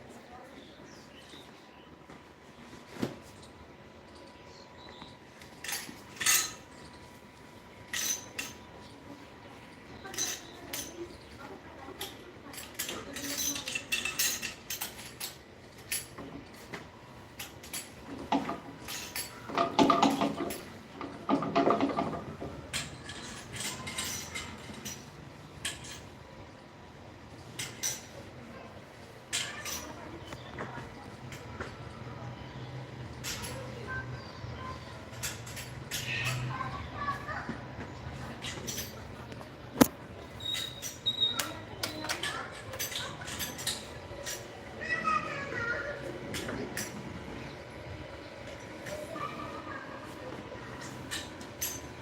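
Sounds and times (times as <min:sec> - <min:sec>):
metal utensils and dishes clinking: 0:05.6 - 0:06.6, 0:07.9 - 0:08.6, 0:10.0 - 0:11.0, 0:12.5 - 0:16.1, 0:21.4 - 0:26.1.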